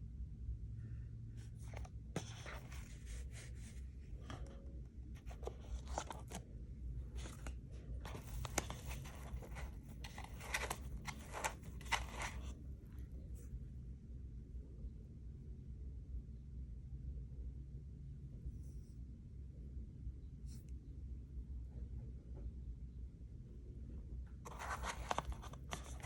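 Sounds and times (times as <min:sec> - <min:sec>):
packaging rustling and crinkling: 0:05.2 - 0:06.4, 0:07.2 - 0:07.5, 0:08.1 - 0:12.6, 0:24.5 - 0:26.0.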